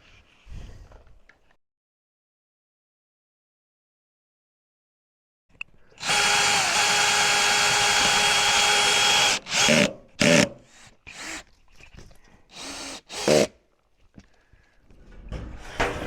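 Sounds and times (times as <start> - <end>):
power drill running: 6.0 - 10.5, 11.1 - 11.4, 12.5 - 13.5.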